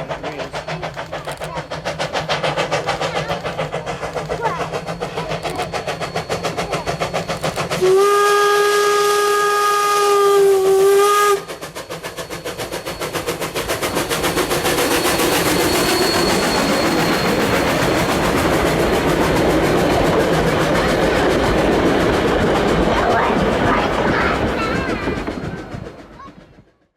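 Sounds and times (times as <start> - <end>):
steam locomotive chuffing: 0.0 - 26.9
steam whistle: 7.8 - 13.5.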